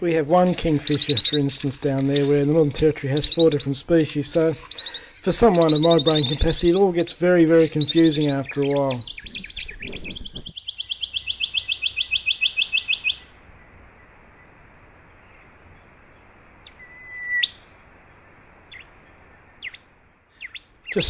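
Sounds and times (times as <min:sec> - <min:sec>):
songbird rapid trill: 0:00.5 - 0:13.4
faint bird chips: 0:00.6 - 0:13.2
short whistled bird call: 0:16.7 - 0:17.7.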